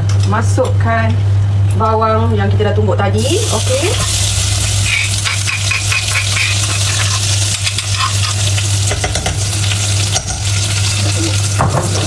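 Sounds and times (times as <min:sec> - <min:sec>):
steady low hum: 0:00.0 - 0:11.6
onion paste sizzling in oil: 0:03.2 - 0:12.0
spoon scraping a mortar: 0:04.9 - 0:08.5.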